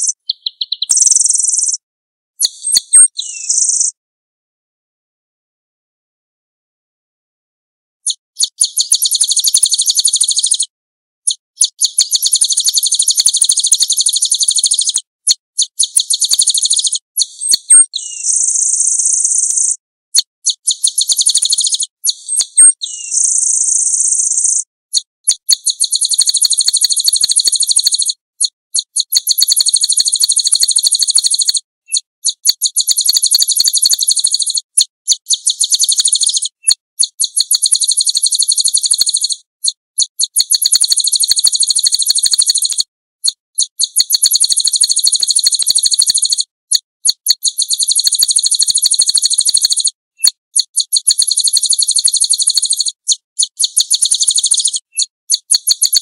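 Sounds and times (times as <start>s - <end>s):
songbird trilling: 0.0s - 1.8s, 2.4s - 3.9s, 8.4s - 10.6s, 11.6s - 15.0s, 15.6s - 19.7s, 20.5s - 24.6s, 25.3s - 28.1s, 28.9s - 39.4s, 40.2s - 42.8s, 47.5s - 55.0s.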